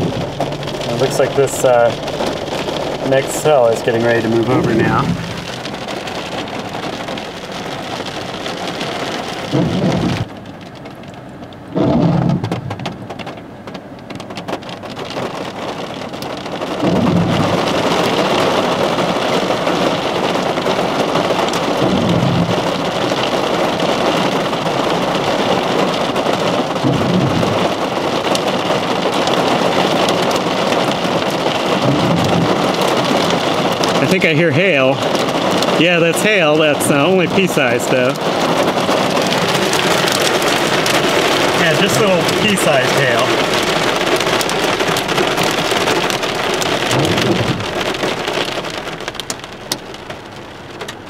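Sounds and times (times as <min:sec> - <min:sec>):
heavy rain pouring: 0:00.0 - 0:51.0
short low thud: 0:09.5 - 0:10.3, 0:11.8 - 0:13.1, 0:46.8 - 0:48.1.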